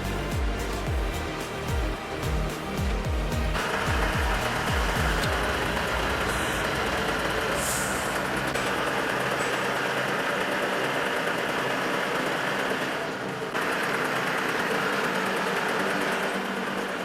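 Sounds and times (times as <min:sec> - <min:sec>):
truck engine running: 0:00.0 - 0:17.0
air hiss: 0:03.5 - 0:10.0.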